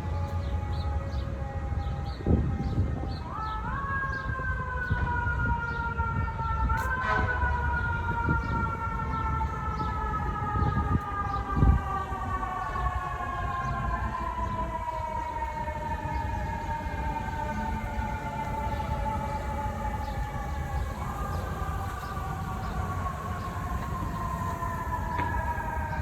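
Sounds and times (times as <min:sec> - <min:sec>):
city traffic rumble: 0:00.0 - 0:26.0
emergency siren wailing: 0:00.0 - 0:26.0.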